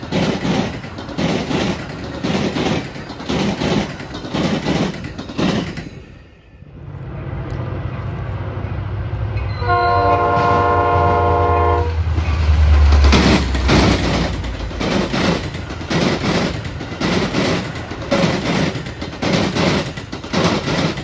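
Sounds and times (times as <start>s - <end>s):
train wheels clacking on track: 0.0s - 6.4s, 9.4s - 21.0s
train horn blast: 9.4s - 12.1s.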